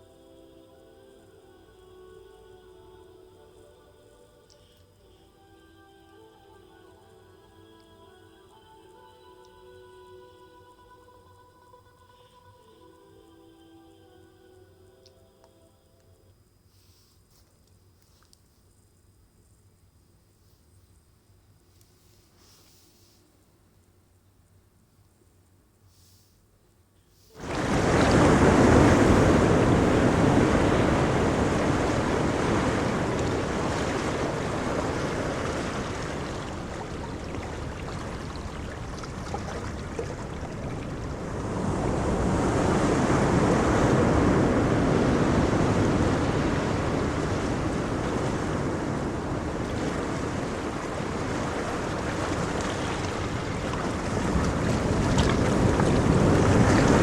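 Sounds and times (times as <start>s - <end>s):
surf washing on beach: 27.3s - 57.0s
wind rumbling on microphone: 27.4s - 57.0s.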